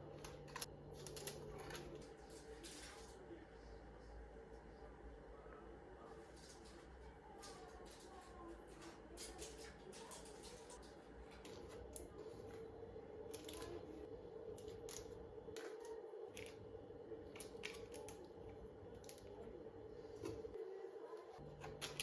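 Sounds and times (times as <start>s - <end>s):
steady low hum: 9.9s - 22.0s.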